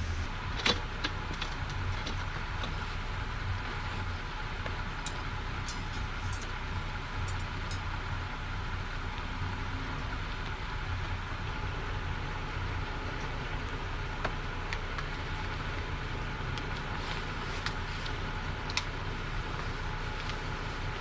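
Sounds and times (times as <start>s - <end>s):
low hum: 0.0s - 0.6s.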